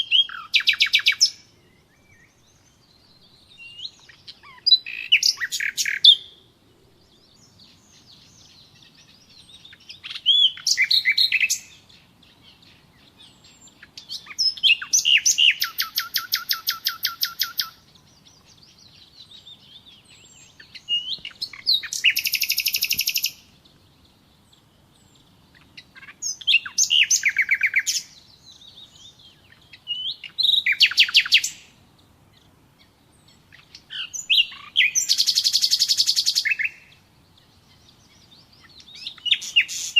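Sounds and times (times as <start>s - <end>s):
songbird whistle and trill: 0.0s - 6.4s, 7.2s - 31.7s, 33.2s - 39.9s
faint bird chirps: 0.0s - 39.9s.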